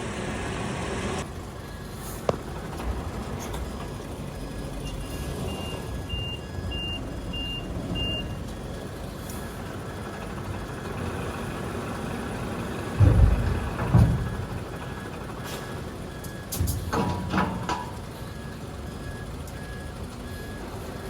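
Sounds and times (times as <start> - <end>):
truck engine rumble: 0.0 - 21.0
truck reversing alarm beeps: 0.0 - 21.0
heavy low thump: 13.0 - 14.7.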